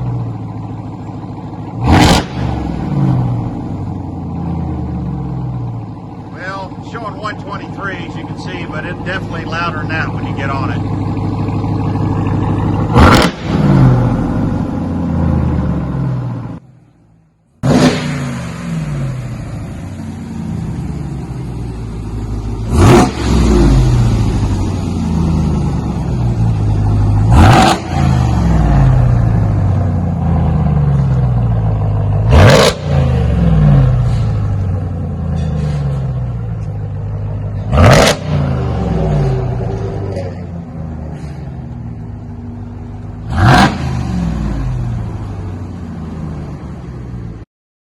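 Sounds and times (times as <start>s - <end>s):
truck engine idling loud: 0.0s - 1.9s, 2.7s - 16.8s, 28.0s - 32.3s, 38.3s - 43.3s
engine revving: 1.4s - 5.7s, 6.4s - 16.6s, 17.6s - 19.8s, 20.5s - 36.4s, 37.0s - 45.4s.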